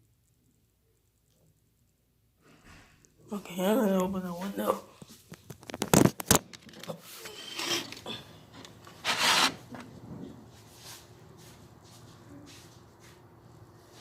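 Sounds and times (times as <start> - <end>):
window sash scraping: 7.2 - 9.8.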